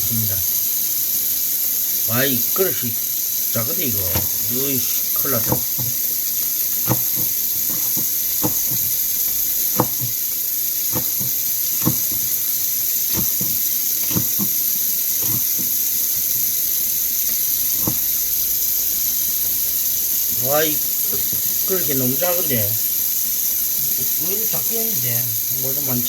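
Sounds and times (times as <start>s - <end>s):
running tap water: 0.0s - 26.0s
kitchen knocks and clicks: 4.1s - 6.1s, 6.8s - 10.2s, 10.9s - 12.4s, 13.1s - 14.6s, 15.2s - 15.8s, 17.8s - 18.1s, 21.1s - 21.6s.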